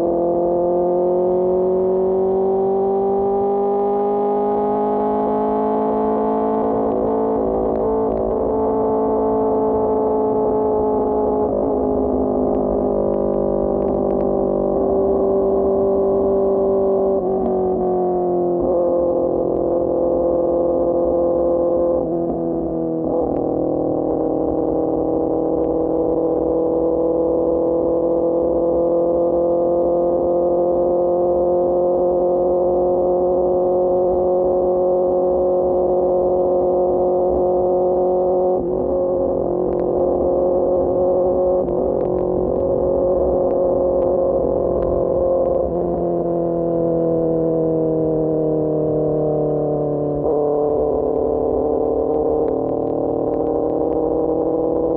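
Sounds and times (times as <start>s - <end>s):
motorcycle engine cruising: 0.0s - 54.9s.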